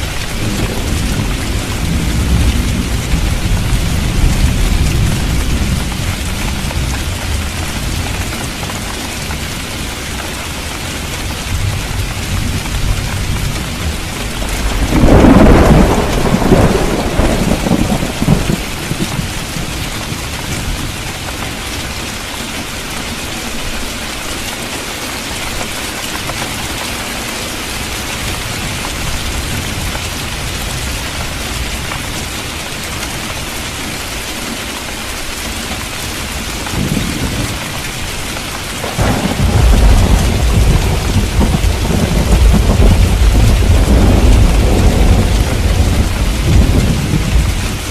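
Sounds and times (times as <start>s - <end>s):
rain falling: 0.0s - 47.9s
thunder rolling: 0.3s - 8.1s, 12.3s - 19.8s, 38.8s - 47.9s.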